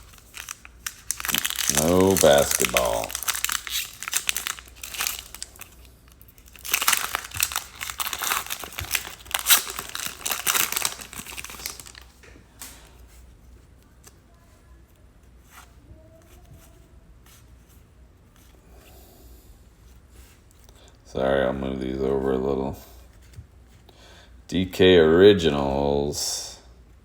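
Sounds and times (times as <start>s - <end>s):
plastic wrapper tearing and crinkling: 0.0s - 12.2s.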